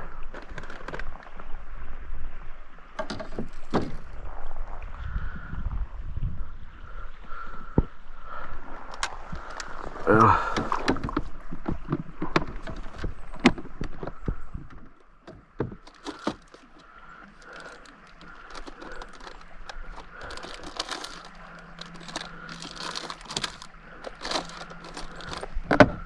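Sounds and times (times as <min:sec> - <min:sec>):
light rustling and crinkling: 0:00.0 - 0:01.5, 0:08.8 - 0:25.8
fishing gear clicks and knocks: 0:00.2 - 0:01.3, 0:03.0 - 0:04.2, 0:08.8 - 0:26.0.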